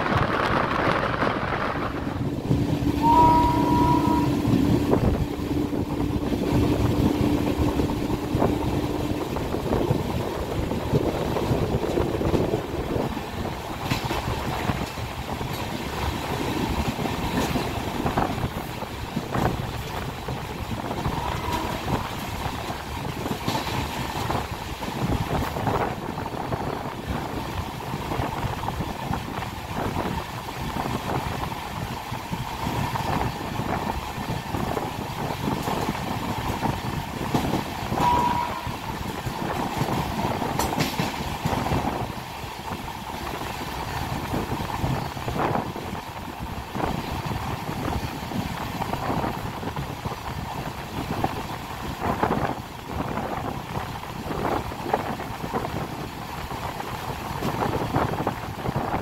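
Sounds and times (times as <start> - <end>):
train wheels clattering: 0.0 - 59.0
brief high tone: 3.0 - 4.4, 38.0 - 38.8.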